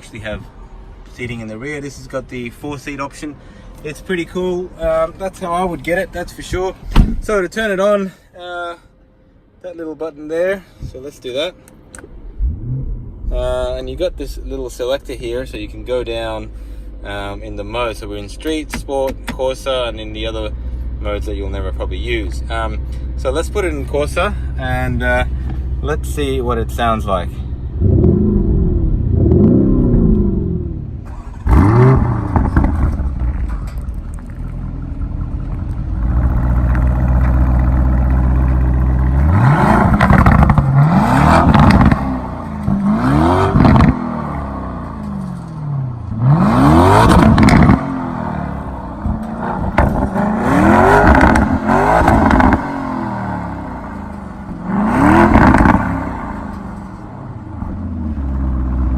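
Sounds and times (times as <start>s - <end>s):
car engine revving: 12.0s - 14.8s, 24.9s - 58.9s.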